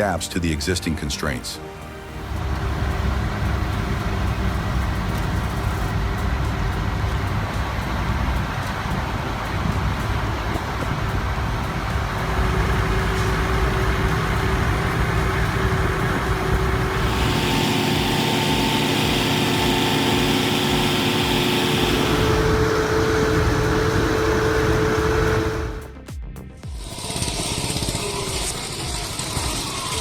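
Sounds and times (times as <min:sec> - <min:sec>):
heavy truck engine running: 0:01.9 - 0:26.0
hiss: 0:07.2 - 0:25.9.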